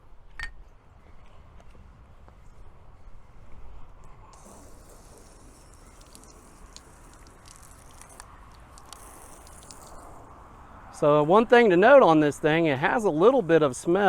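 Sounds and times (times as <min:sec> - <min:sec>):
hose water spray hissing: 0:04.2 - 0:10.6
water ticks and patter: 0:04.3 - 0:10.2.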